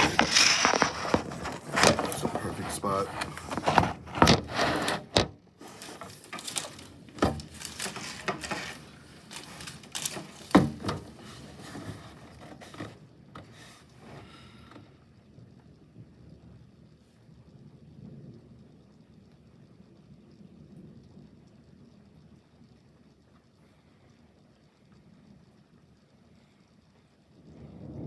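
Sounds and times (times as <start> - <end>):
camera being handled: 0.0 - 13.8.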